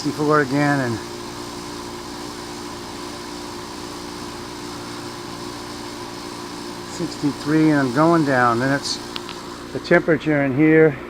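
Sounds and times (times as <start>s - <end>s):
air conditioner humming: 0.0s - 11.0s.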